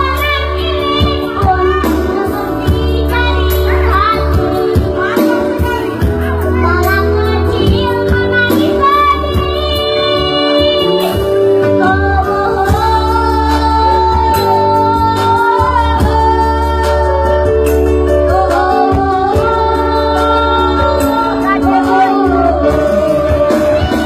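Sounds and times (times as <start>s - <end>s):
girl singing: 0.0s - 11.2s, 18.3s - 24.0s
instrumental backing with bass and beat: 0.0s - 24.0s.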